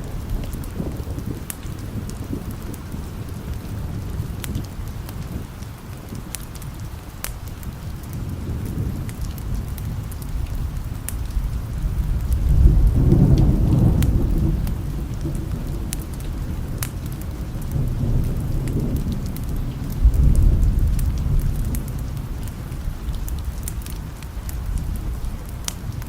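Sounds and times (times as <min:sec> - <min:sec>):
low rolling thunder: 0:00.0 - 0:26.0
steady rain: 0:00.0 - 0:26.0.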